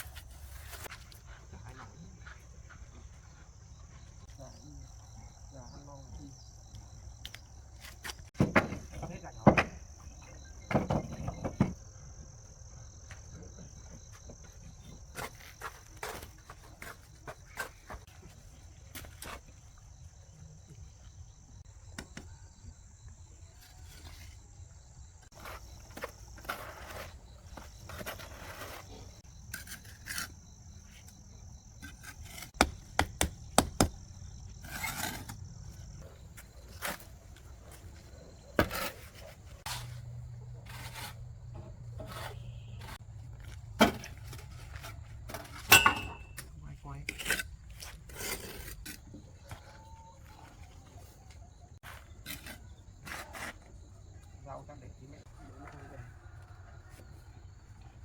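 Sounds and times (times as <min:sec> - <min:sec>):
scraping: 0:25.3 - 0:31.2, 0:34.5 - 0:43.0.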